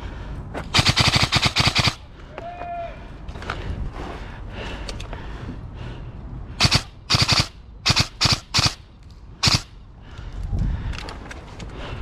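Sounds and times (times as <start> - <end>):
airsoft rifle firing bursts: 0.7 - 2.1, 6.6 - 8.8, 9.4 - 9.7.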